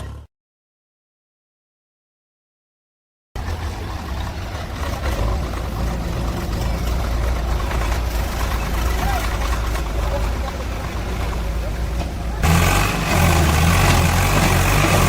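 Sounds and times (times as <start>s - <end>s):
heavy diesel engine rumbling: 3.4s - 15.0s.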